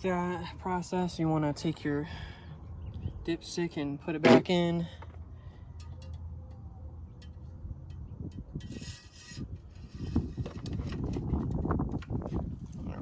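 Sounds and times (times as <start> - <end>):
dipstick scraping into tube: 8.6 - 11.4.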